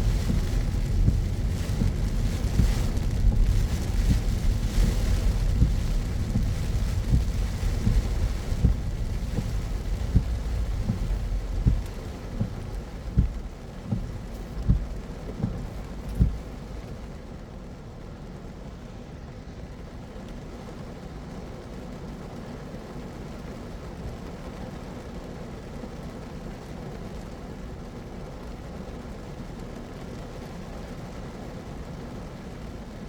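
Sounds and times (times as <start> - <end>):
regular low thumps: 0.0 - 17.1
rain hissing: 0.0 - 33.0
tyres rumbling on wet road: 0.0 - 33.0.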